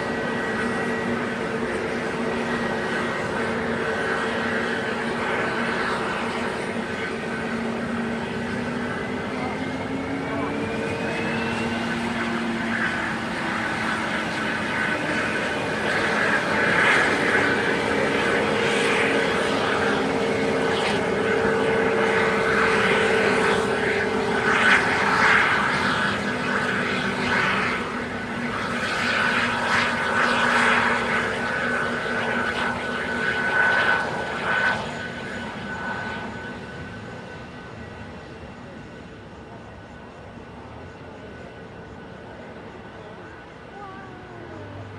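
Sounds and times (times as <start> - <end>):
jet engines running: 0.0 - 44.9.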